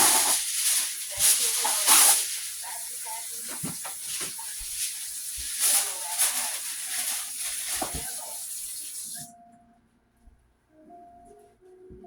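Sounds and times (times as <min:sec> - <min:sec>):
tap running into sink: 0:03.4 - 0:09.3.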